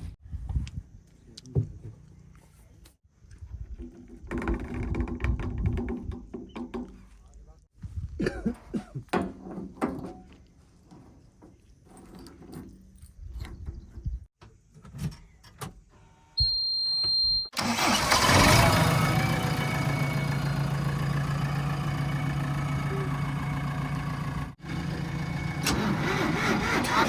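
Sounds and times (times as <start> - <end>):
high beep: 16.4 - 17.6
diesel engine starting and running: 17.5 - 27.0.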